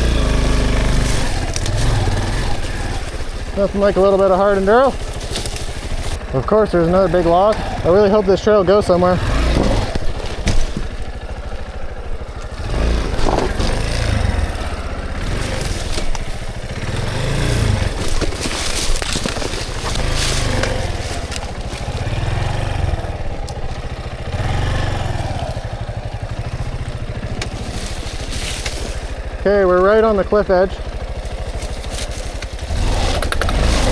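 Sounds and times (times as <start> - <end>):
dirt bike engine revving: 0.0 - 33.9
scraping and clattering: 9.4 - 24.2, 25.2 - 29.4.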